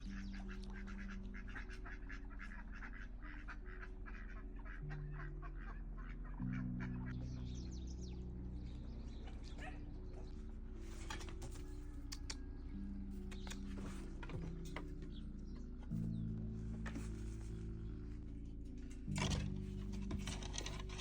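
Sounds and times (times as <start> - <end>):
ducks quacking: 0.1 - 10.4.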